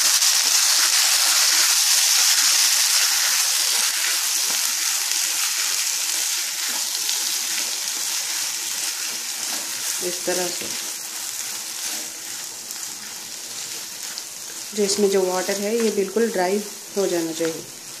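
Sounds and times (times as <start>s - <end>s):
food sizzling in oil: 0.0s - 18.0s
spatula stirring: 0.2s - 18.0s.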